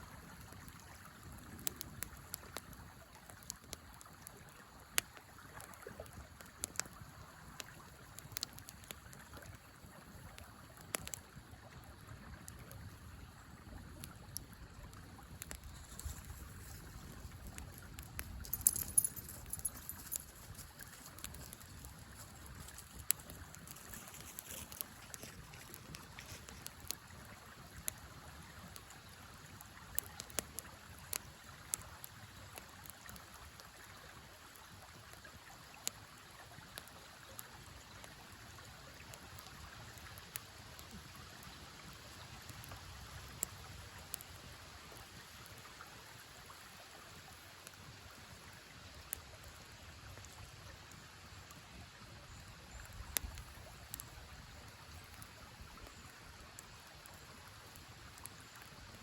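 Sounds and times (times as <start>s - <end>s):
campfire crackling: 0.1s - 59.0s
river flowing: 2.2s - 59.0s.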